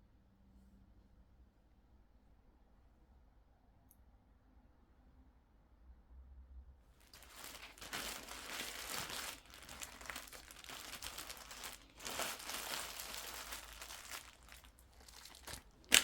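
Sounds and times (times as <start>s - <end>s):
crinkling and rustling: 7.0s - 16.0s.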